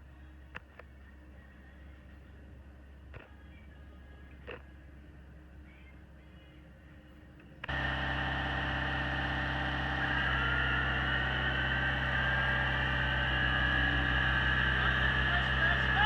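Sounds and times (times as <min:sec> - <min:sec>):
excavator diesel engine running: 0:07.7 - 0:16.0
high whine: 0:07.7 - 0:16.0.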